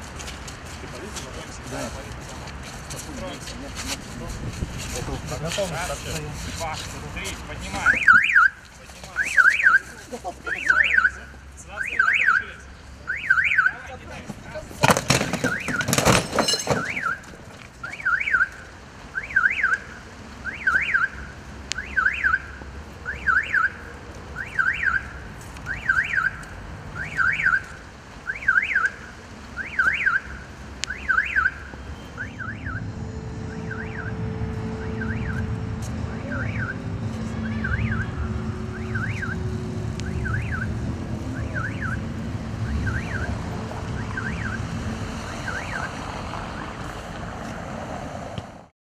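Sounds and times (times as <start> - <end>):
car alarm chirping: 7.7 - 13.9, 15.2 - 23.8, 24.4 - 26.4, 27.0 - 46.8
low rumble: 32.1 - 46.5.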